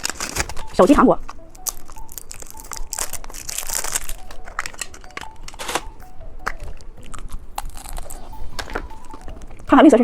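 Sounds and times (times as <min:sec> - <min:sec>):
plastic wrapper crinkling: 0:00.0 - 0:09.7.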